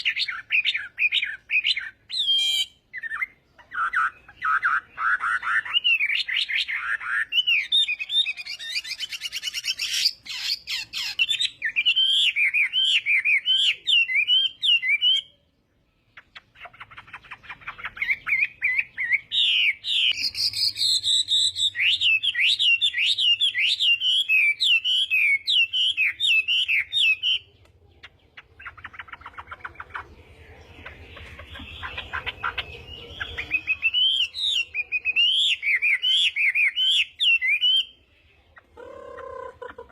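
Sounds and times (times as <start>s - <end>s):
bird singing whistled notes: 0.0s - 15.5s, 16.2s - 39.4s.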